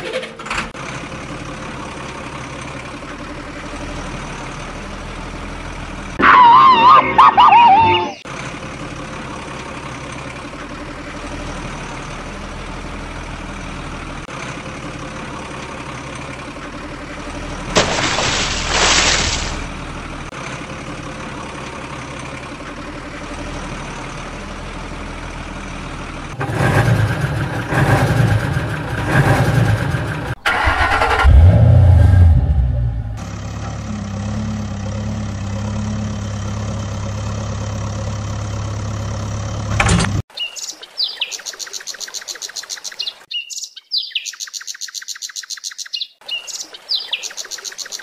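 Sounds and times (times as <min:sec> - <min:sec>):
vehicle engine idling: 0:00.0 - 0:40.3
engine revving bursts: 0:26.3 - 0:37.6.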